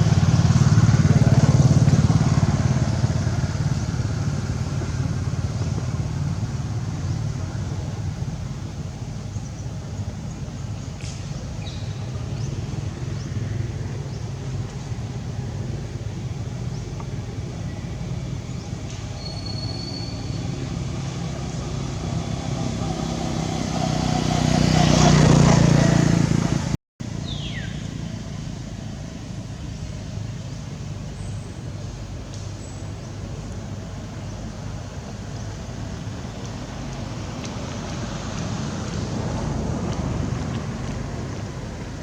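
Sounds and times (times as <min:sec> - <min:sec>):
vehicle engine passing: 0:00.0 - 0:08.5, 0:20.1 - 0:26.8.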